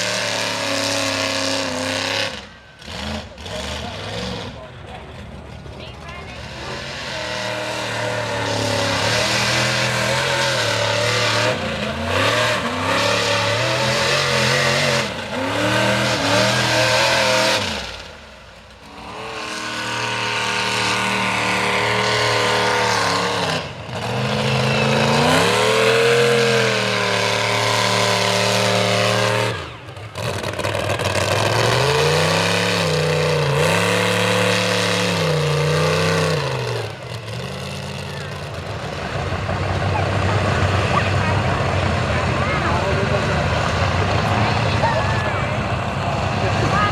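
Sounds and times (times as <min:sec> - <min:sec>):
truck engine revving hard: 0:00.0 - 0:46.9.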